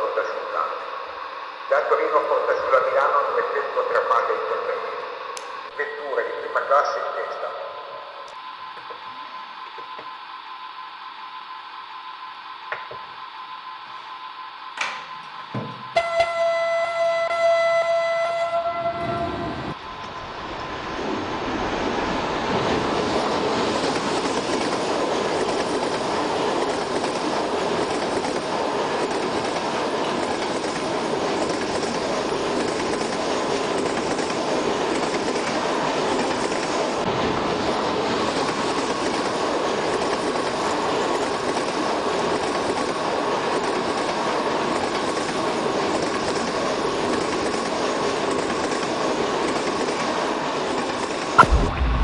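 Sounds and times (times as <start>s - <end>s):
train wheels rumbling on rail: 14.8s - 51.5s
steady whine: 51.4s - 52.0s.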